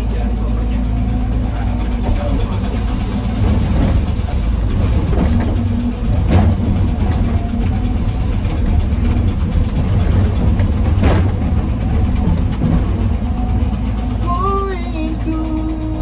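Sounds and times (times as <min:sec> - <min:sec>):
excavator diesel engine running: 0:00.0 - 0:16.0
sharp knocks: 0:01.9 - 0:13.5.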